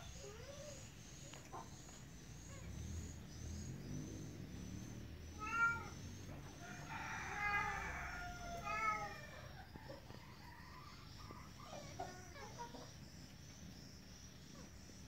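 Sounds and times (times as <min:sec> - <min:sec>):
faint high chirping: 0:00.0 - 0:15.0
kitten meowing: 0:05.4 - 0:06.0.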